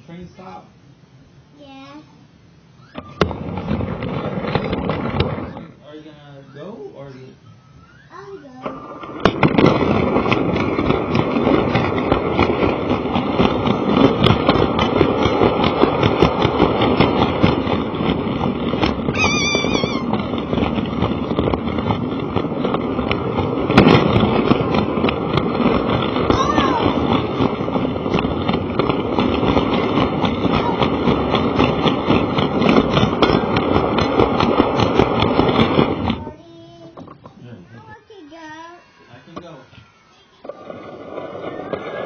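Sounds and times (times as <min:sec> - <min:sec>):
wheels clattering along track: 0:03.2 - 0:05.8, 0:08.6 - 0:38.0, 0:40.4 - 0:42.0
toy train motor and gears: 0:07.9 - 0:42.0.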